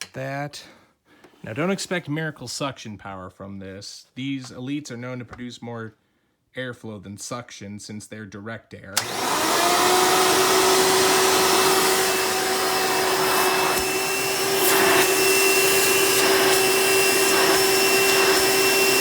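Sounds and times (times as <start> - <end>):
vacuum cleaner running: 9.0 - 19.0.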